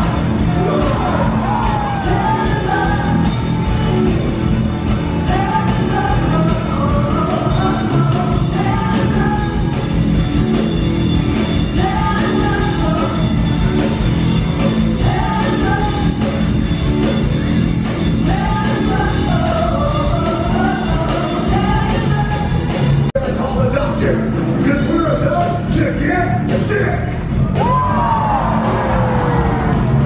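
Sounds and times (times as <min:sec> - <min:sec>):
person singing: 0:00.0 - 0:04.3, 0:04.9 - 0:10.0, 0:11.6 - 0:16.7, 0:18.0 - 0:24.1
loud rock music: 0:00.0 - 0:30.0.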